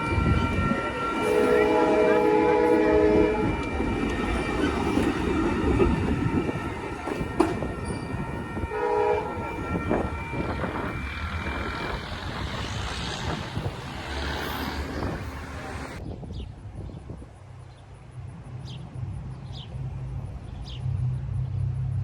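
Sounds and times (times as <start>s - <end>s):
train horn: 0.0s - 16.0s
train rumble and wheel clatter: 0.0s - 22.0s.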